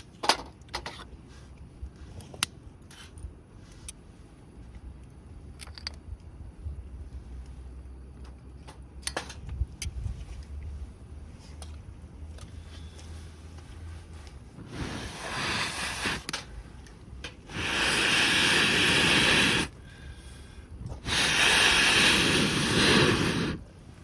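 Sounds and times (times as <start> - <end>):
gas torch hissing: 14.4 - 24.0.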